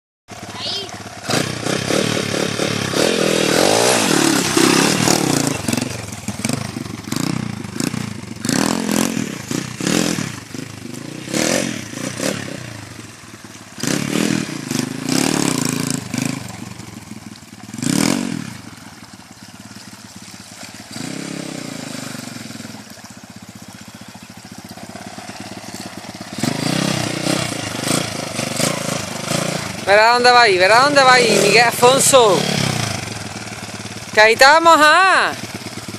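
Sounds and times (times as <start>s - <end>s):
pit bike engine revving: 0.3s - 35.9s.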